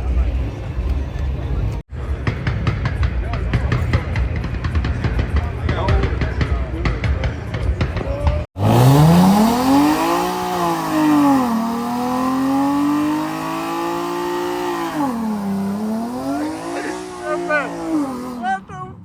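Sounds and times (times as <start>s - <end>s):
spinning tires hissing: 8.6s - 18.6s
car engine revving: 8.6s - 18.7s.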